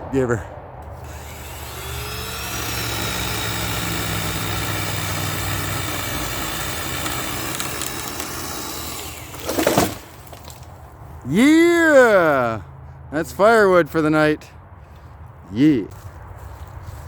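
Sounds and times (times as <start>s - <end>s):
chainsaw cutting a log: 0.9s - 10.6s.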